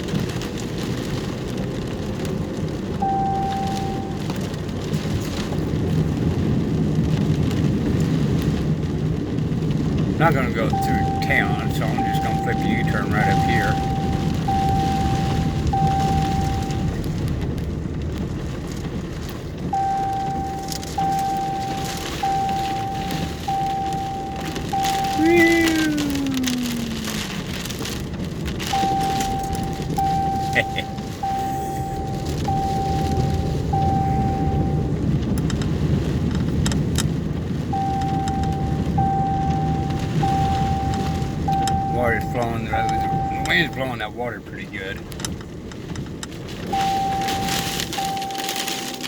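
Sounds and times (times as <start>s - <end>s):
crackly storm hiss: 0.0s - 49.0s
vehicle engine rumble inside cab: 0.0s - 49.0s
electronic warning tone beeping: 3.0s - 4.3s, 10.2s - 17.0s, 19.7s - 27.4s, 28.7s - 35.0s, 37.8s - 44.0s, 46.7s - 49.0s.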